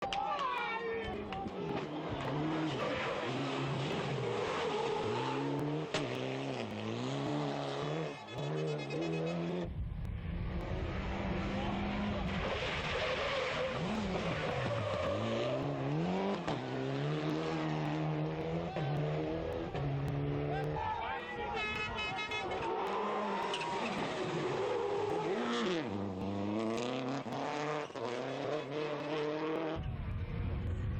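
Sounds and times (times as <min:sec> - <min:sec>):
rally car engines revving: 0:00.0 - 0:30.9
low rumble: 0:09.6 - 0:12.4, 0:29.8 - 0:30.9.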